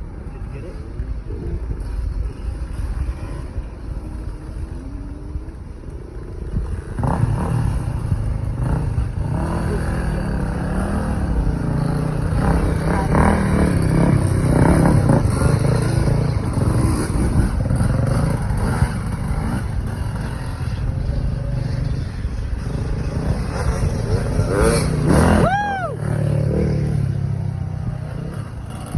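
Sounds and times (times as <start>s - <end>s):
dirt bike engine revving: 6.5s - 28.9s.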